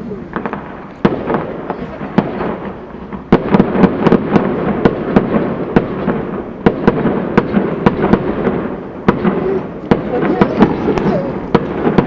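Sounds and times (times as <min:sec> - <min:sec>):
rumble of firework reports: 0:00.0 - 0:12.0
firework shells bursting: 0:00.2 - 0:12.0.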